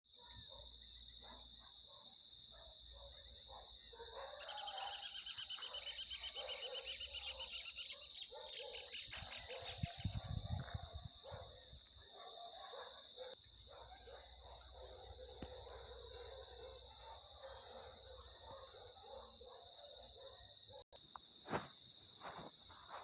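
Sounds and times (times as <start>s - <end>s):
bird calls: 4.1s - 10.3s.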